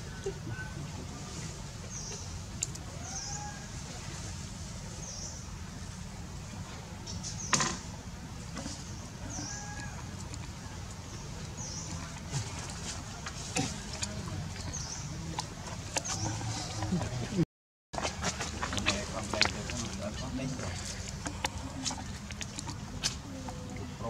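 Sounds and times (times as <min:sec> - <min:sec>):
bird calling: 0:09.2 - 0:13.0, 0:14.5 - 0:17.3.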